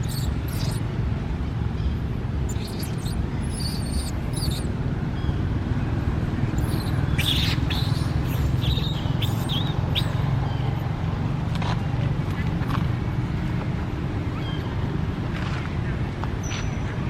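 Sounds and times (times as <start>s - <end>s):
baby monkey squeaking: 0.0s - 0.8s, 2.5s - 4.8s, 6.6s - 10.2s.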